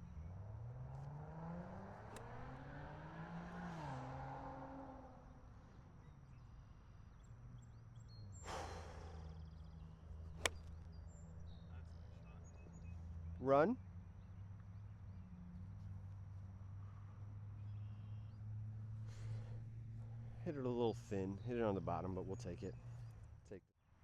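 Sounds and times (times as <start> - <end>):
engine running: 0.0 - 5.5.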